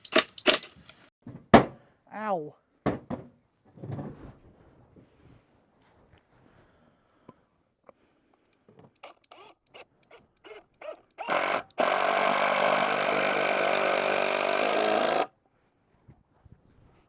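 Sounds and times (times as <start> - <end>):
cordless drill driving a screw: 9.0 - 15.3.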